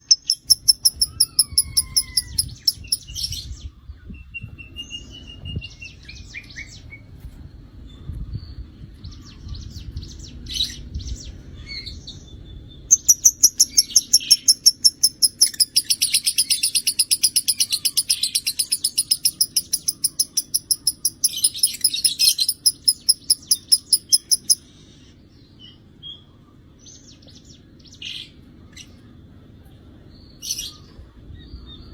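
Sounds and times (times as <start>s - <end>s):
lovebird chirping: 0.0s - 3.3s, 12.9s - 24.6s.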